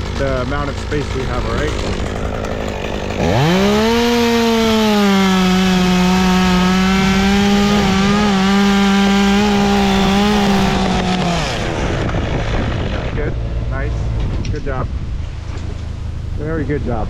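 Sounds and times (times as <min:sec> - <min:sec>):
chainsaw cutting wood: 0:00.0 - 0:13.3.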